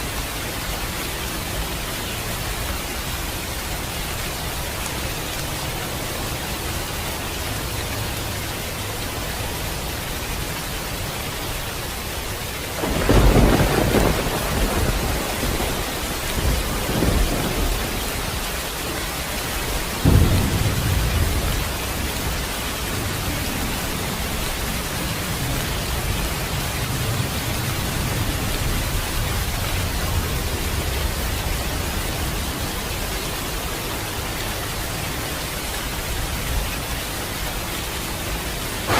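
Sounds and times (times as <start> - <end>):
heavy rain hissing: 0.0 - 38.9
thunder cracking and rumbling: 12.8 - 32.6.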